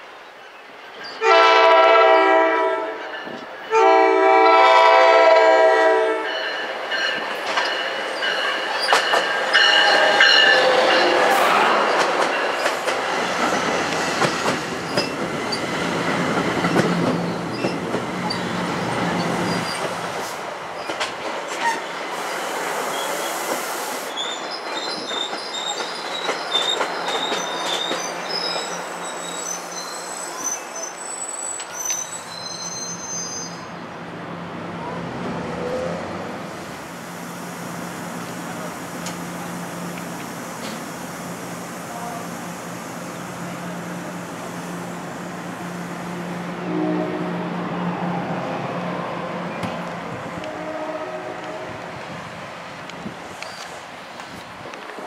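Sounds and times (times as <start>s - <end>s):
train horn blasts: 1.2s - 3.1s, 3.7s - 6.4s, 46.6s - 47.6s, 50.4s - 51.8s
crossing bells ringing: 2.8s - 4.2s, 6.1s - 11.4s
train wheels clicking over rail joints: 7.1s - 22.8s, 23.4s - 28.8s.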